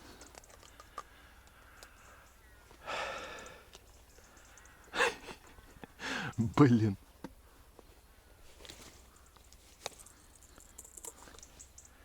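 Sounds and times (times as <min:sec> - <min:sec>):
faint clicks: 0:00.2 - 0:02.4, 0:03.2 - 0:05.0
person sighing: 0:02.8 - 0:03.6.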